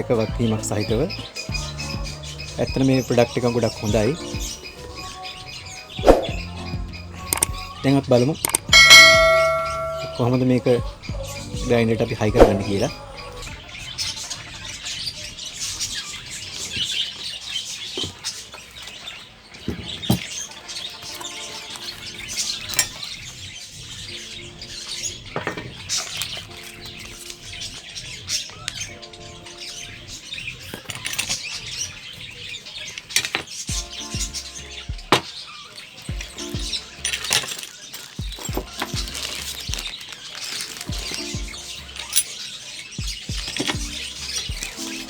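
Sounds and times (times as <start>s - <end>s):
birds chirping: 0.0s - 45.0s
faint background music: 0.0s - 45.0s
metal parts clicking and knocking: 21.0s - 23.1s, 25.4s - 27.4s, 30.7s - 31.7s, 32.9s - 33.8s, 36.2s - 42.4s, 43.3s - 45.0s.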